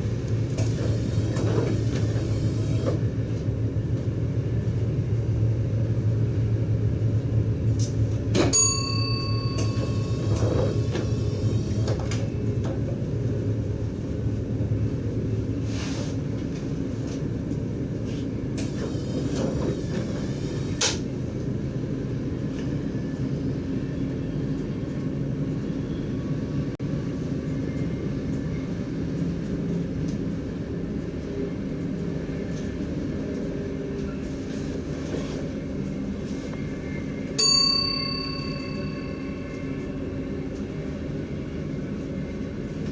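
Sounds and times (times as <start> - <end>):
train low rumble: 0.0 - 42.9
sharp ding: 8.5 - 10.1, 37.4 - 39.6.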